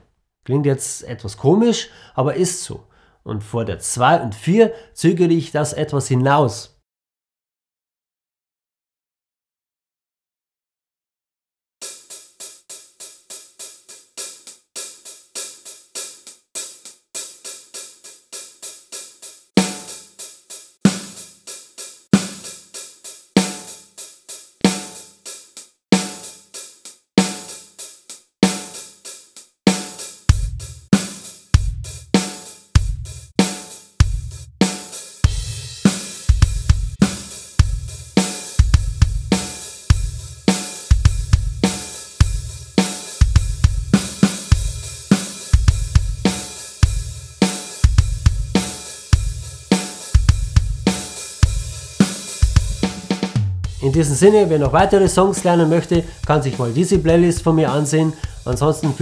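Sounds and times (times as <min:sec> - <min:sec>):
snare drum backbeats: 0:19.6 - 0:20.0, 0:20.8 - 0:21.3, 0:22.1 - 0:22.6, 0:24.6 - 0:25.0, 0:26.0 - 0:26.3, 0:29.7 - 0:59.0
bass drum: 0:30.3 - 0:32.2, 0:32.8 - 0:33.4, 0:34.0 - 0:34.6, 0:35.2 - 0:59.0
hi-hat eighth notes: 0:53.7 - 0:59.0.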